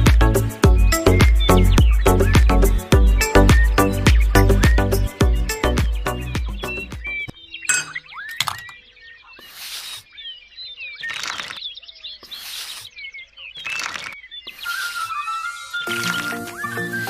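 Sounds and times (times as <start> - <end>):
music: 0.0 - 7.2, 15.8 - 17.0
small birds chirping: 0.0 - 17.0.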